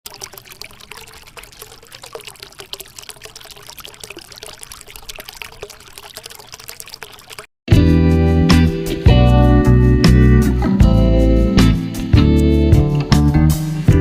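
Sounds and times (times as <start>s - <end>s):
fountain water trickling and splashing: 0.0s - 7.5s
water drips: 0.0s - 7.5s.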